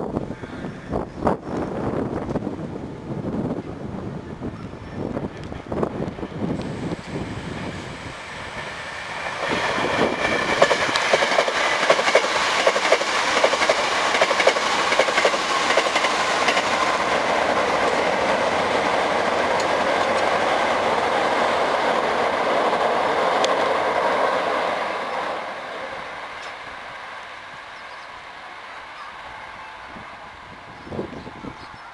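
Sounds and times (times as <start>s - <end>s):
train running rumble: 1.8s - 26.9s
train wheels clacking over rail joints: 8.5s - 21.0s.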